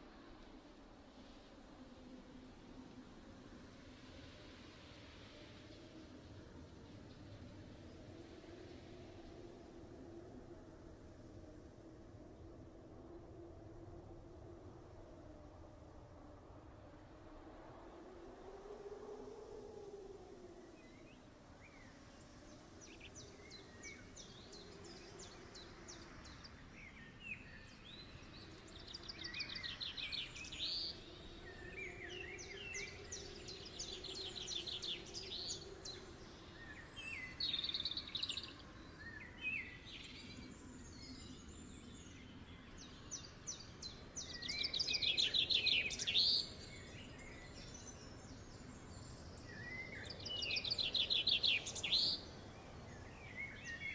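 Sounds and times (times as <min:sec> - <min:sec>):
birds singing high chirping trills: 0:20.8 - 0:53.9.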